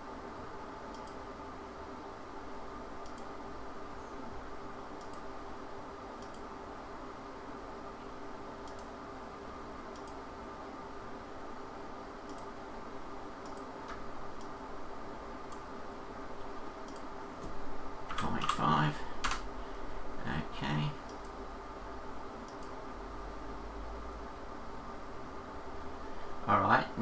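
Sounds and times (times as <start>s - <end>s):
steady electrical hum: 0.0s - 27.0s
computer mouse clicking: 0.9s - 1.2s, 3.0s - 3.4s, 4.9s - 5.3s, 6.2s - 6.5s, 8.6s - 9.0s, 9.9s - 10.2s, 12.2s - 12.6s, 13.4s - 14.6s, 15.5s - 15.7s, 16.8s - 17.1s, 18.1s - 19.5s, 21.0s - 21.4s, 22.4s - 22.8s.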